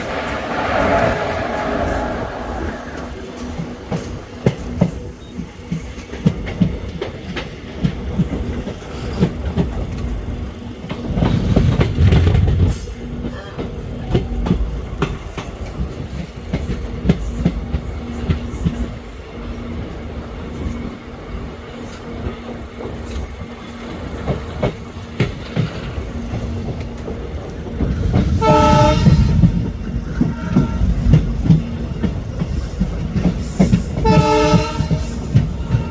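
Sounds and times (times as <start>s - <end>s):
train hum: 0.0s - 35.9s
train rumble: 0.0s - 35.9s
train wheels clicking on rail joints: 0.0s - 35.9s.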